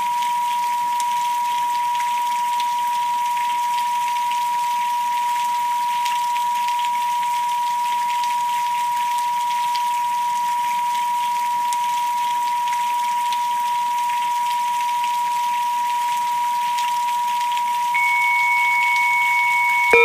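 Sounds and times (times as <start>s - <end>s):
rain with drop ticks: 0.0s - 20.0s
steady pure tone: 18.0s - 20.0s.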